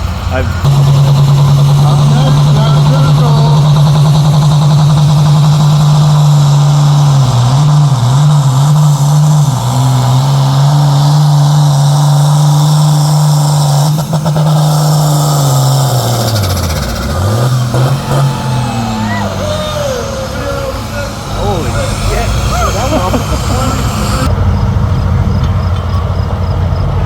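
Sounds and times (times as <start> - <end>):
vehicle engine revving hard: 0.0 - 27.0.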